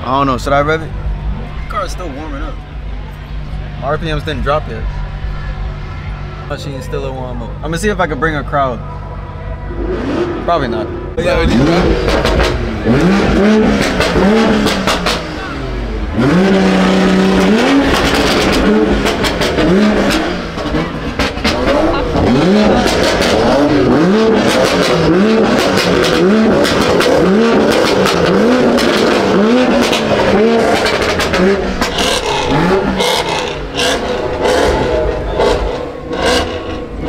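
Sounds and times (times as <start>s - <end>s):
car engine revving: 0.0s - 37.0s
exhaust pops and cracks: 17.1s - 34.8s.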